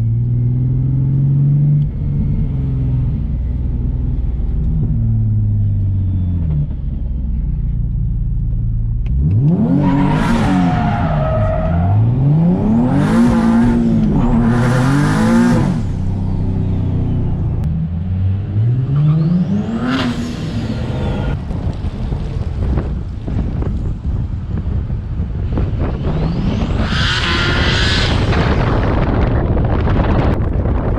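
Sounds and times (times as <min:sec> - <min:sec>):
car engine revving: 0:09.0 - 0:21.8, 0:25.6 - 0:30.3.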